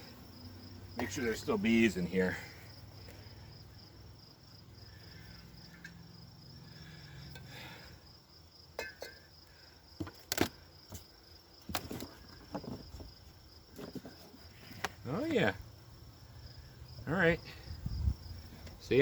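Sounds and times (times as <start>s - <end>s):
insects chirring: 0.0s - 19.0s
wooden hive knocks and scrapes: 10.0s - 15.4s.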